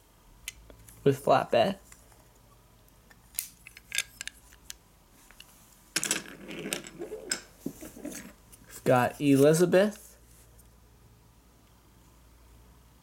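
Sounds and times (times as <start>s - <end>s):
toy vehicles clattering on hard surface: 6.0s - 8.4s.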